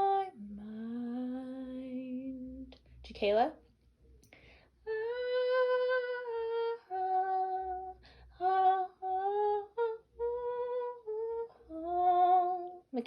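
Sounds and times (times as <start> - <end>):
girl singing long notes: 4.9 - 12.8.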